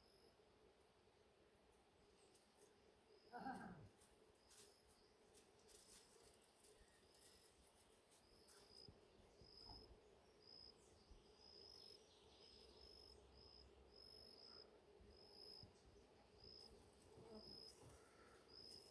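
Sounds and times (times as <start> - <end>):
faint low hum: 0.0 - 18.9
insect chirping: 8.2 - 15.8, 16.4 - 18.9.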